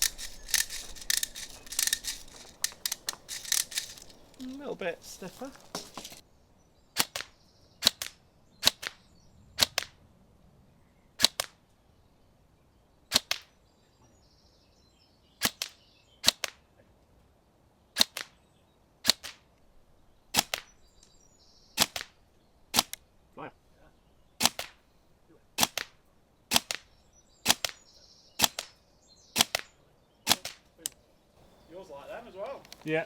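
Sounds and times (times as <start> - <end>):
airsoft rifle shots: 7.0 - 9.0, 9.6 - 10.0, 11.2 - 11.6, 15.4 - 16.6, 19.0 - 19.4, 20.3 - 20.7, 21.8 - 23.0, 24.4 - 24.8, 25.6 - 26.9, 27.5 - 27.8, 28.4 - 28.8, 29.4 - 29.7, 30.3 - 30.6.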